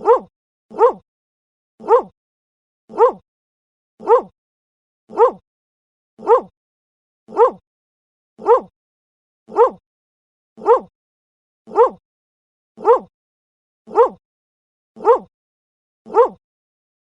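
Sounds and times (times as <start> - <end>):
dog barking: 0.0 - 1.0, 1.8 - 2.2, 2.9 - 3.2, 4.0 - 4.3, 5.1 - 5.4, 6.2 - 6.5, 7.3 - 7.6, 8.4 - 8.7, 9.5 - 9.8, 10.6 - 10.9, 11.7 - 12.0, 12.8 - 13.1, 13.9 - 14.2, 15.0 - 15.3, 16.1 - 16.4.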